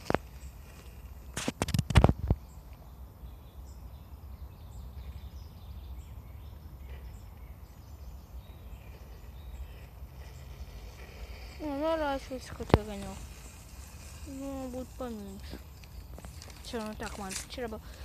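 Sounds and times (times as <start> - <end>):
faint high chirps and ticks: 0.0 - 18.0
sharp scrapes and knocks: 1.3 - 2.2.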